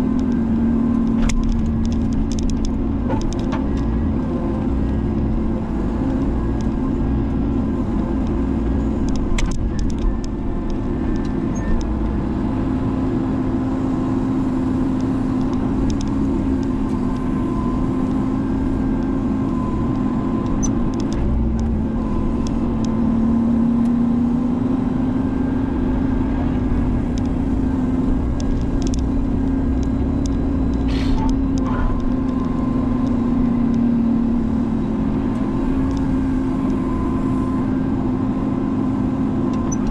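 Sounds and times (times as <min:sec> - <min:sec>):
diesel engine running: 0:00.0 - 0:39.9
sharp clicks and knocks: 0:01.0 - 0:04.0, 0:07.9 - 0:12.2, 0:19.9 - 0:21.7, 0:28.3 - 0:33.9.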